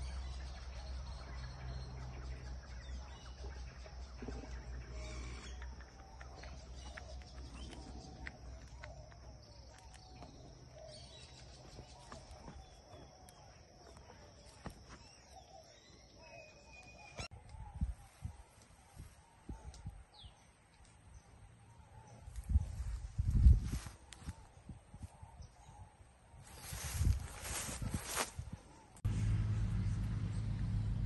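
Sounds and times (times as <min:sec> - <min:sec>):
birds calling: 0:00.0 - 0:22.9
low rumble: 0:29.1 - 0:31.0.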